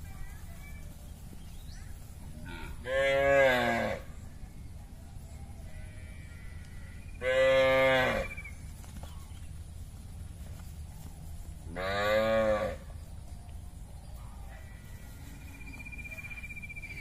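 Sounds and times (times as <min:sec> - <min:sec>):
cattle mooing: 0:02.5 - 0:04.0, 0:05.9 - 0:08.4, 0:11.8 - 0:12.8.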